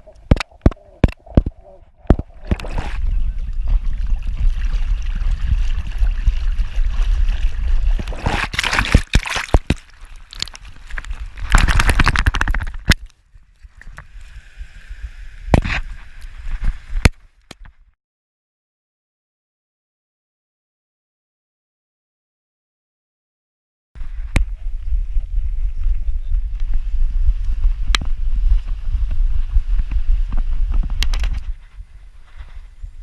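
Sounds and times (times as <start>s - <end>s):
sea water sloshing and splashing: 0.0s - 13.0s.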